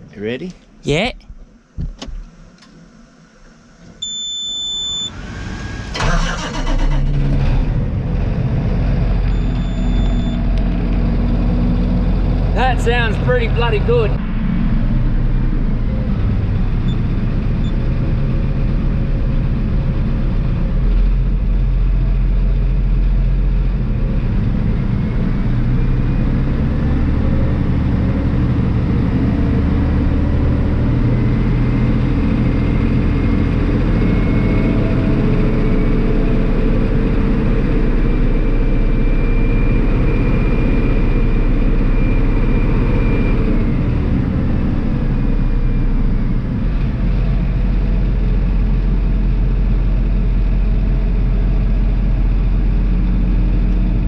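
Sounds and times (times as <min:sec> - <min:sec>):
tractor diesel engine idling: 0:06.0 - 0:14.2.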